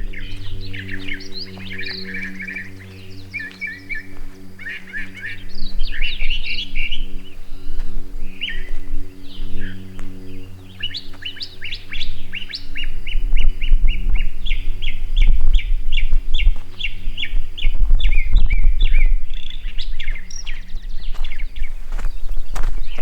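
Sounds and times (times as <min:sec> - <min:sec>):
loud low rumble: 0:00.0 - 0:21.7
songbird chirping: 0:00.0 - 0:23.0.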